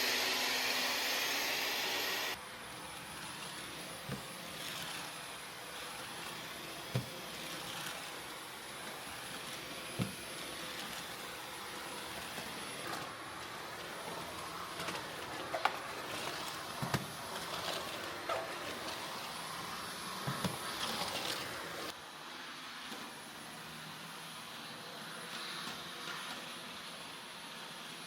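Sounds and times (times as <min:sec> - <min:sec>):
vacuum cleaner running: 0:00.0 - 0:28.0
vacuum cleaner knocking: 0:20.2 - 0:21.0.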